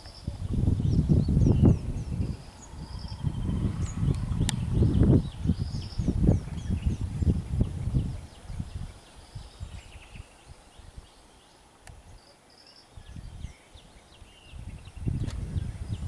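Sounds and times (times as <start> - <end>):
small birds chirping: 0.0 - 16.0
low thumping and rumbling: 0.5 - 8.2.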